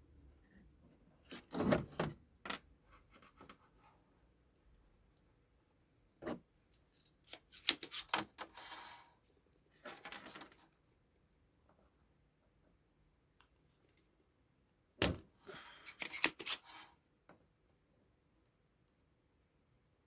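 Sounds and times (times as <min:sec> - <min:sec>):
hand tools clicking and scraping: 0:07.0 - 0:08.2, 0:15.8 - 0:16.8.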